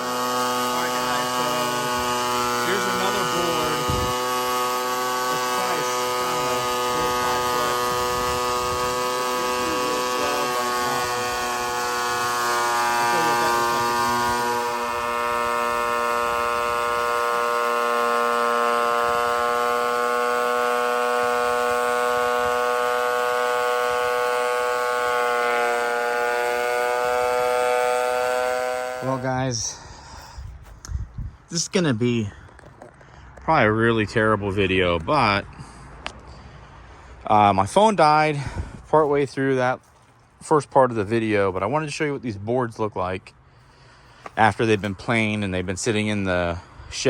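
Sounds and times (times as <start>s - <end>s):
thickness planer motor whine: 0.0s - 29.8s.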